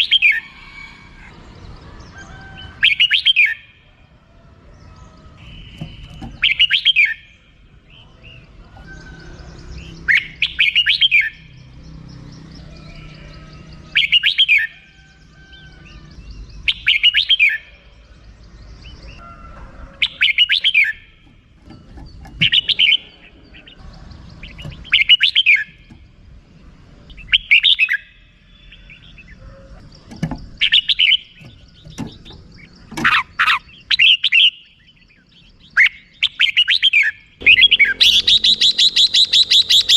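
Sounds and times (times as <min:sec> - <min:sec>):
bulbul harsh chattering call: 0:27.1 - 0:39.9.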